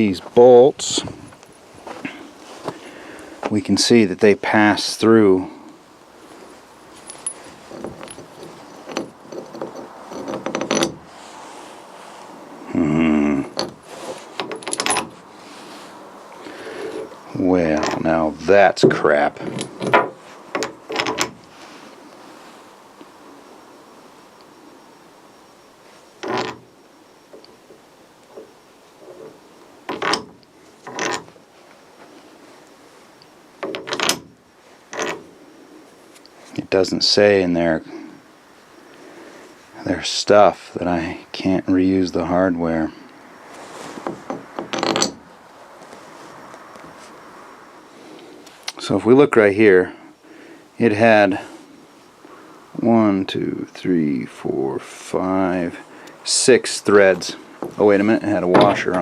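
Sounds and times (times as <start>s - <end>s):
metal hardware clinking: 6.9s - 11.1s, 14.4s - 15.2s, 18.8s - 21.4s, 27.3s - 31.3s, 44.0s - 45.2s, 57.6s - 59.0s
metal tools clicking and rattling: 7.0s - 11.1s, 14.4s - 15.2s, 18.8s - 21.4s, 44.3s - 45.2s.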